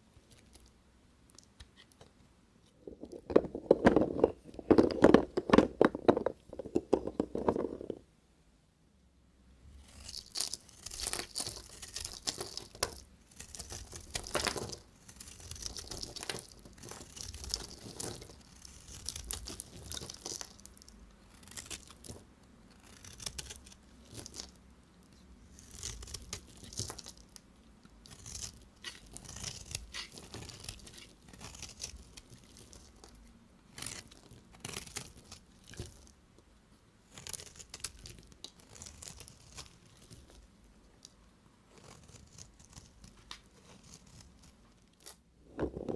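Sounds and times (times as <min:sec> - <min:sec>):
knife cutting soap: 0:09.8 - 0:22.2, 0:22.8 - 0:24.6, 0:25.5 - 0:27.3, 0:27.9 - 0:36.1.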